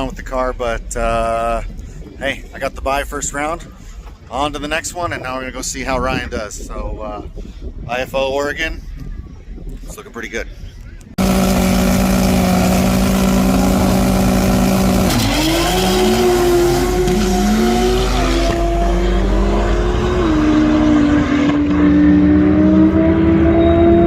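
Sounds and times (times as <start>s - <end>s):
drag race cars revving and accelerating: 11.2s - 24.0s.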